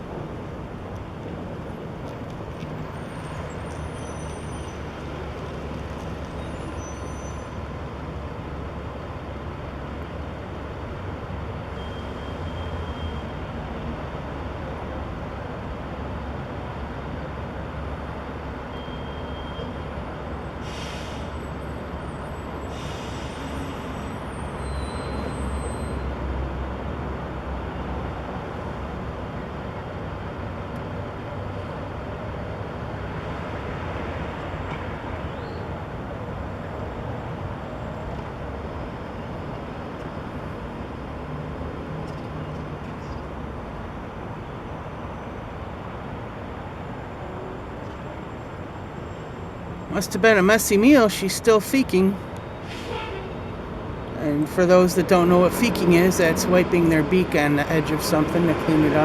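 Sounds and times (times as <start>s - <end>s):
city traffic rumble: 0.0s - 59.0s
air brake hisses: 20.6s - 21.4s, 22.7s - 24.1s, 52.6s - 53.3s
heavy vehicle passing: 49.9s - 59.0s.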